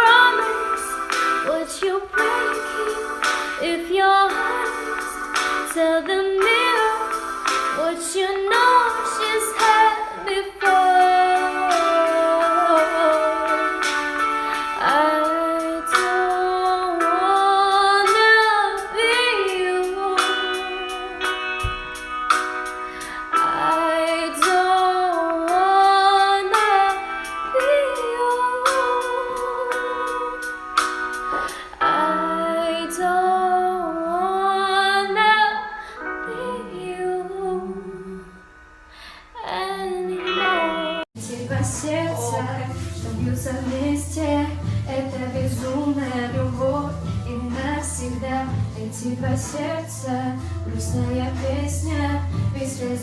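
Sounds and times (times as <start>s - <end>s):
woman singing: 0.0s - 21.8s, 23.1s - 30.6s, 31.3s - 38.4s, 39.3s - 53.0s
backing music: 0.0s - 34.5s, 36.0s - 47.8s
woman singing long held notes: 31.4s - 35.3s, 39.2s - 43.2s.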